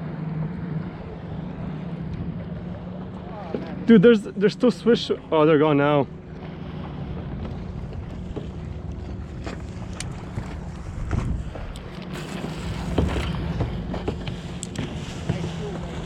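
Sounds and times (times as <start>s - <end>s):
water lapping against hull: 0.0s - 16.0s
wind buffeting microphone: 6.1s - 16.0s.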